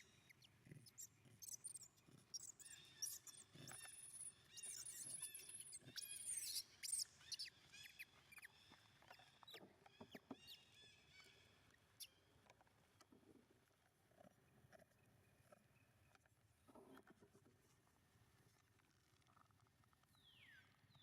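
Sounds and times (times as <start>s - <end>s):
baby monkey squeaking: 0.4s - 8.5s.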